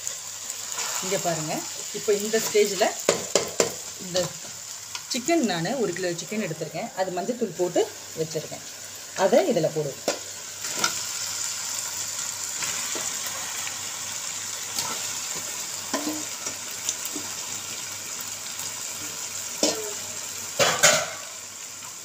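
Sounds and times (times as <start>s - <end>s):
chicken sizzling in hot oil: 0.0s - 22.0s
metal ladle scraping a pan: 0.7s - 1.4s.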